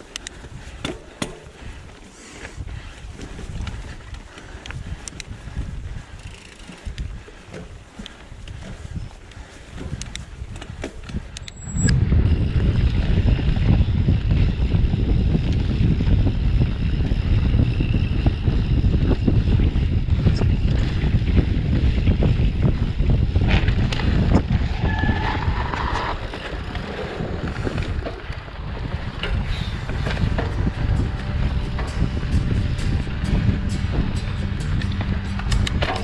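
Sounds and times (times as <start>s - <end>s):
bike clicks and knocks: 0.0s - 11.9s, 25.7s - 30.8s, 34.7s - 36.0s
wind rumbling on microphone: 0.0s - 36.0s.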